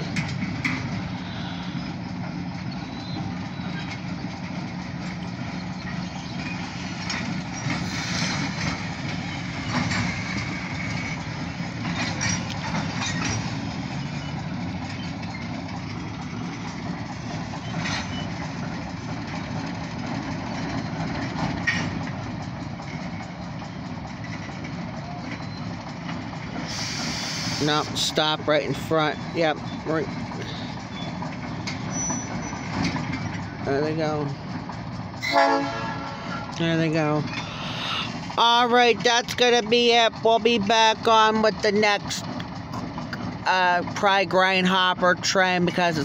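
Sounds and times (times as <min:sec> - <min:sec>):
diesel locomotive engine: 0:00.0 - 0:46.0
freight train rumbling past: 0:00.0 - 0:46.0
wheels clicking and knocking on rails: 0:00.0 - 0:46.0
high squeal: 0:30.9 - 0:32.7.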